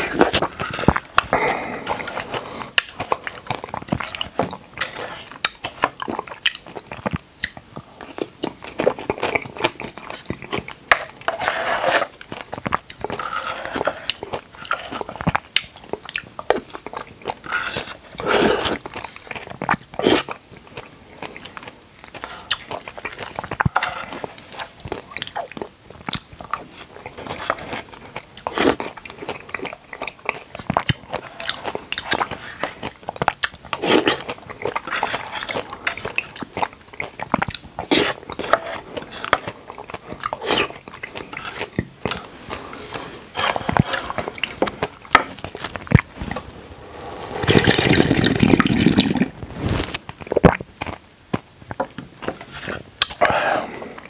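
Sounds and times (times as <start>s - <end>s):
person chewing wetly: 0.0s - 46.5s, 47.3s - 54.0s.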